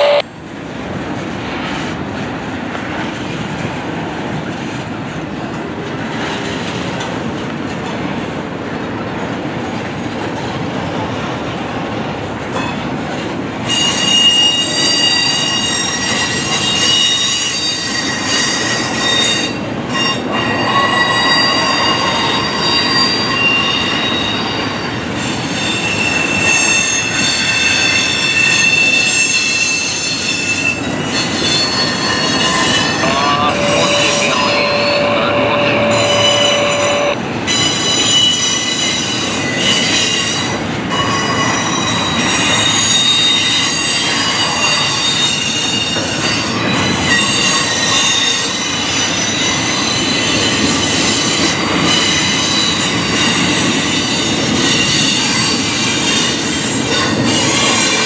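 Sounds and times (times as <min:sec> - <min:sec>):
freight wheels rumbling on rail: 0:00.0 - 0:58.0
wheels squealing: 0:25.5 - 0:38.3.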